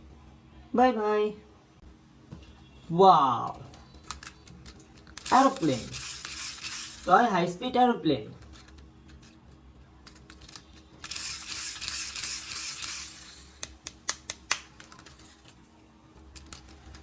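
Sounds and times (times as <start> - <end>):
plastic toy rustling: 4.0 - 7.2, 8.3 - 13.5.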